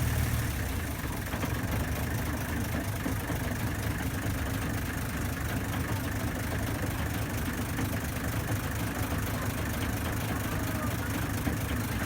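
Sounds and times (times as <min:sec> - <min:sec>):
ferry engine low rumble: 0:00.0 - 0:03.4
wind: 0:00.0 - 0:12.0.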